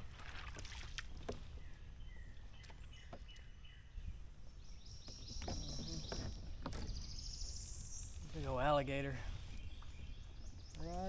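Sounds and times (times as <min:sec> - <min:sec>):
birds chirping: 0:01.4 - 0:11.0.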